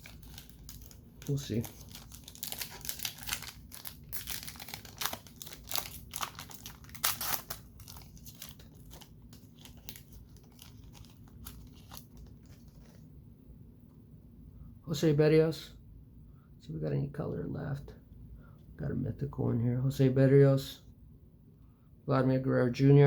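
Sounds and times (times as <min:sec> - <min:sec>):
plastic foil wrapper crinkling: 0:00.0 - 0:13.0.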